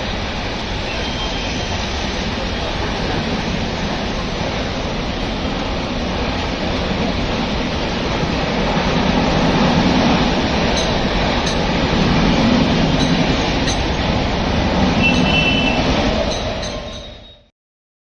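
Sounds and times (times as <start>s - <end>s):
train rumbling on rails: 0.0s - 17.5s
train wheels clicking: 9.2s - 17.4s.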